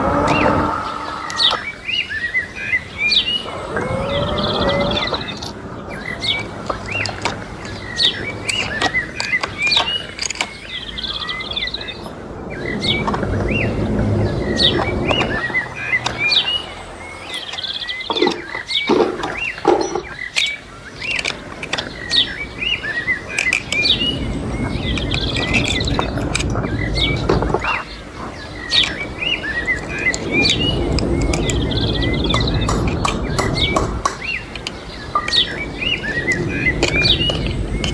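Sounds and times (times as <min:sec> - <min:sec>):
sharp clicks: 0:00.0 - 0:01.7, 0:04.8 - 0:11.0, 0:14.6 - 0:37.9
small birds chirping: 0:00.0 - 0:37.9
steady low background noise: 0:00.0 - 0:37.9.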